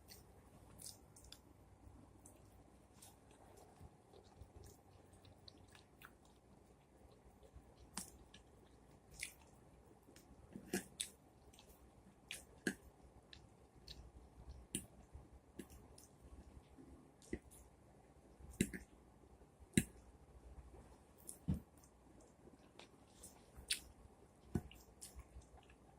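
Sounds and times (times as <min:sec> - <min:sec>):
person chewing food: 0:00.0 - 0:01.5, 0:02.2 - 0:14.9, 0:21.2 - 0:25.9.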